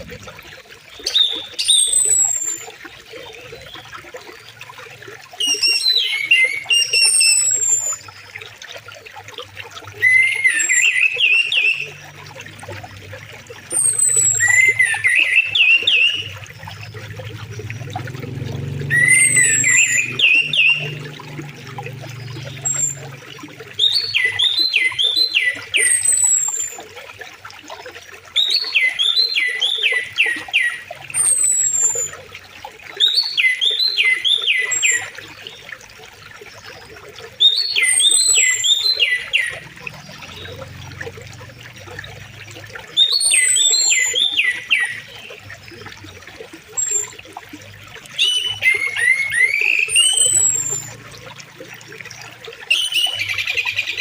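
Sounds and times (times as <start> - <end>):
river water flowing: 0.0 - 54.0
songbird singing whistled phrase: 48.2 - 51.0.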